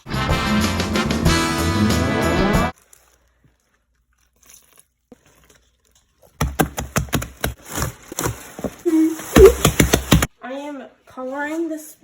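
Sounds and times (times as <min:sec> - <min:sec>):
background music: 0:00.0 - 0:02.7
crinkling handling noises: 0:02.7 - 0:06.4, 0:07.5 - 0:09.4.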